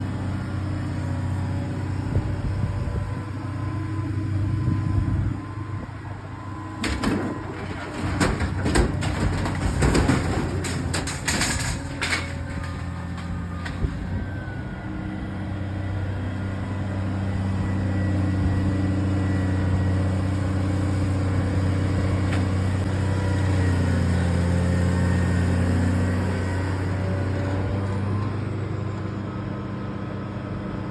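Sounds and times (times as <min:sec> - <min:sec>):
excavator engine running: 0:00.0 - 0:29.6
scrap metal clanking: 0:06.8 - 0:14.0.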